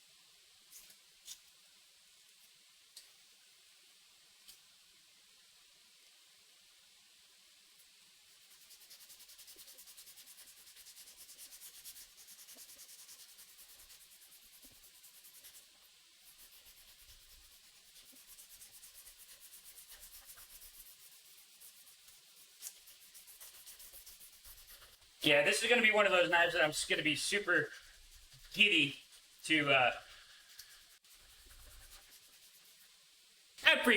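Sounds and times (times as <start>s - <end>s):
sandpaper scratching wood: 8.4s - 33.0s.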